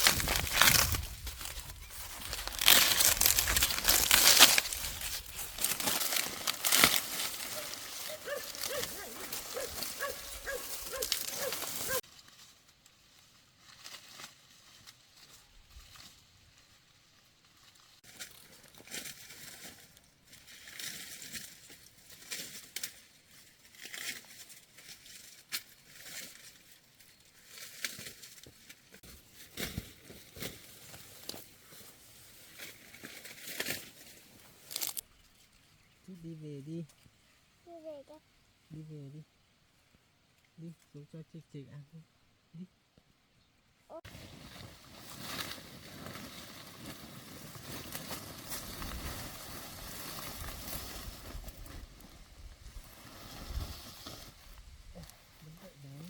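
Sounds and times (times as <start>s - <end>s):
scattered crackles and clicks: 0.0s - 12.0s, 34.6s - 35.0s
crinkling handling noise: 0.0s - 13.1s, 17.9s - 35.6s, 44.0s - 55.4s.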